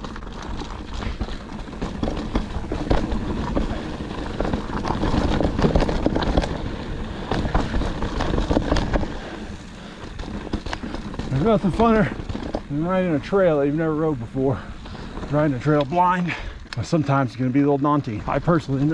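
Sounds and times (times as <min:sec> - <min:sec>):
bike knocking and rattling: 0:00.0 - 0:18.9
bike tyres crunching on dirt: 0:00.0 - 0:18.9.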